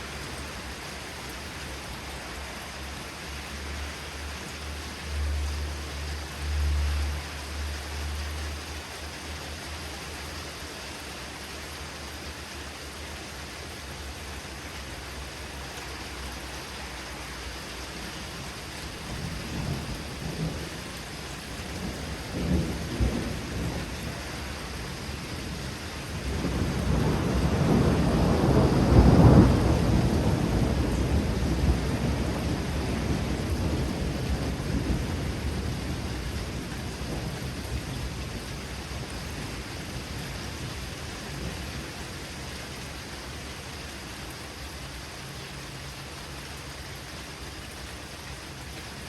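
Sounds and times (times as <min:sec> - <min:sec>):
steady rain: 0:00.0 - 0:49.0
thunder rumbling: 0:18.9 - 0:42.0.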